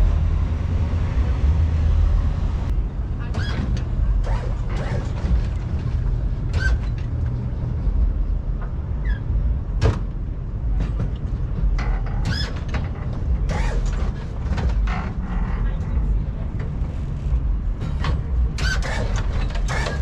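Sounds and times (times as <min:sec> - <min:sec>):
vehicle engines rumbling: 0:00.0 - 0:20.0
short squeaks: 0:06.5 - 0:07.2, 0:11.8 - 0:15.6, 0:18.6 - 0:20.0.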